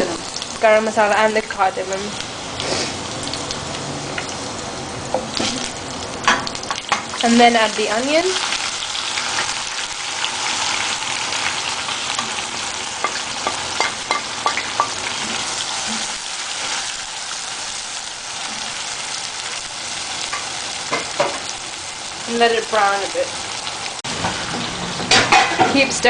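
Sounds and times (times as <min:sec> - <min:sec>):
onion sizzling in oil: 0:00.0 - 0:26.0
spoon knocking in pan: 0:13.0 - 0:16.1.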